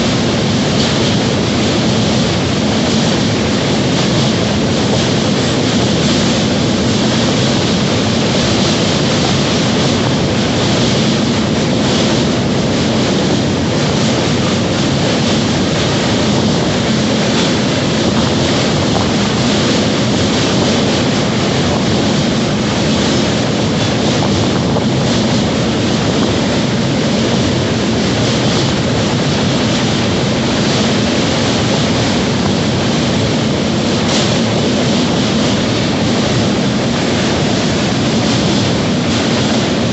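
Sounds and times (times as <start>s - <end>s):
train rumbling at speed: 0.0s - 39.9s.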